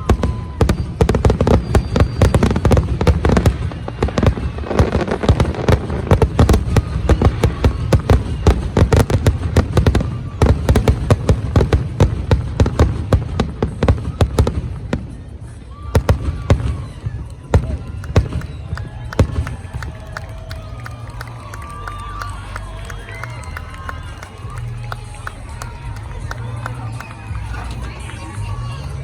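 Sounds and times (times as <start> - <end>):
fireworks bursting: 0.0 - 14.8.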